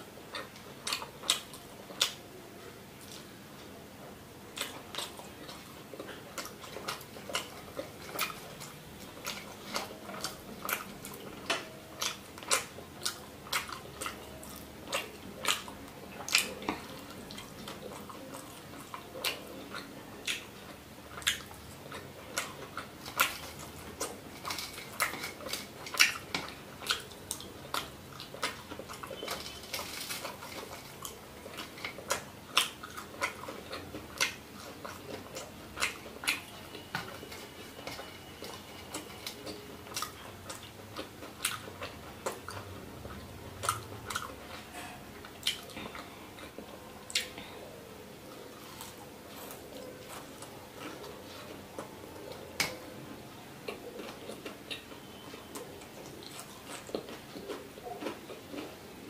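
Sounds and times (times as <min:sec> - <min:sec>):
person chewing: 0:00.0 - 0:02.2, 0:04.5 - 0:59.0.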